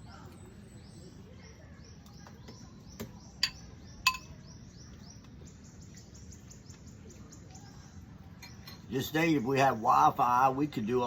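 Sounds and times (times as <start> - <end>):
sharp ringing clinks: 3.4 - 4.4.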